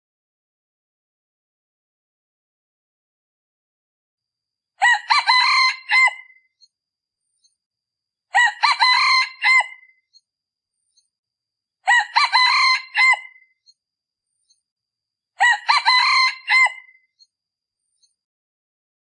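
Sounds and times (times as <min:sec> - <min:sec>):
junglefowl crowing: 0:04.8 - 0:06.4, 0:08.3 - 0:10.0, 0:11.8 - 0:13.5, 0:15.4 - 0:17.0.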